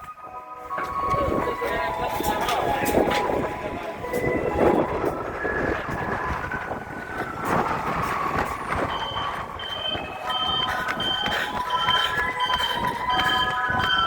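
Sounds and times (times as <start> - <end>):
high warning beeps: 8.5 - 14.0.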